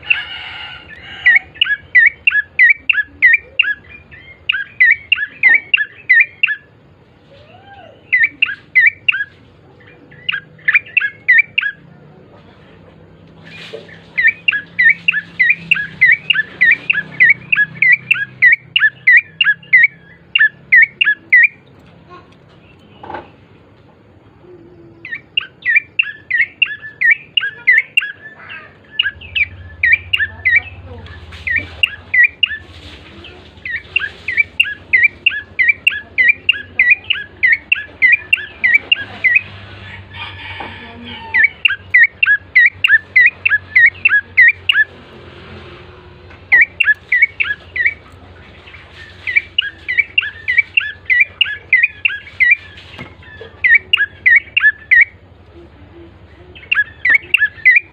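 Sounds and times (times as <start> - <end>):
songbird rapid sharp chirps: 0.0 - 6.8, 8.0 - 11.9, 13.2 - 21.8, 25.0 - 40.6, 41.2 - 45.2, 46.4 - 55.2, 56.4 - 57.9
faint low hum: 0.0 - 57.9.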